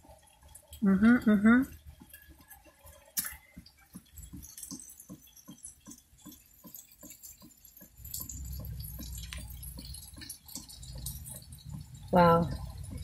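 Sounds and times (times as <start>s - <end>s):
water drops on hard surface: 0.0s - 13.0s.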